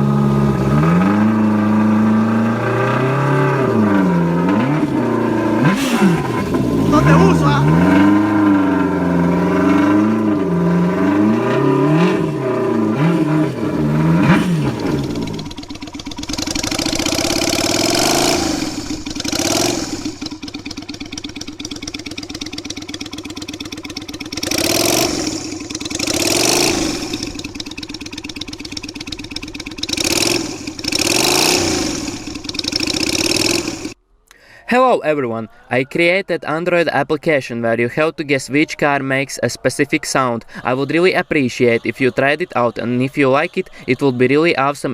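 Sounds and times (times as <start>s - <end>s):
engine revving loudly: 0.0s - 34.0s
sharp throttle blips: 0.0s - 34.0s.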